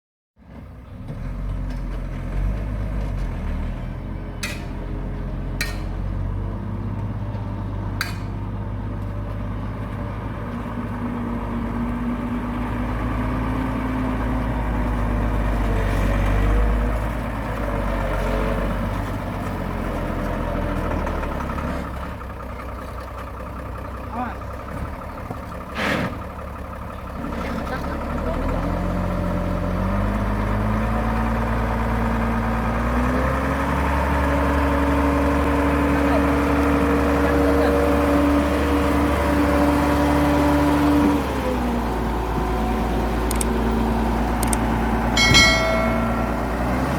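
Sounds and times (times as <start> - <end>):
diesel machinery engine: 0.4 - 46.9
sharp metallic clanks: 4.4 - 4.9, 5.6 - 6.0, 8.0 - 8.4, 45.2 - 46.9.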